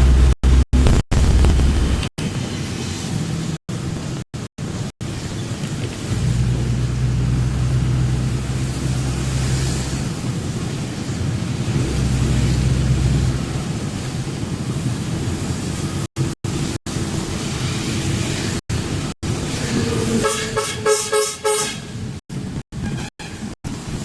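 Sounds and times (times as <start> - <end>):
vehicle engine and road rumble: 0.0 - 24.0
short horn toots: 20.0 - 21.9.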